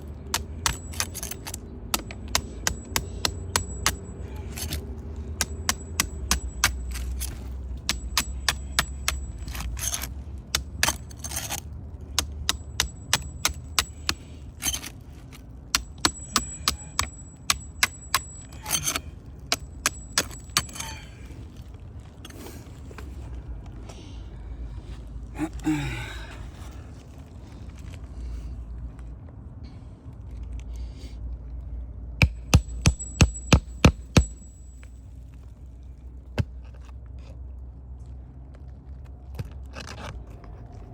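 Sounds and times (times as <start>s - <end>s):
hammer tapping on roof: 32.2s - 34.3s.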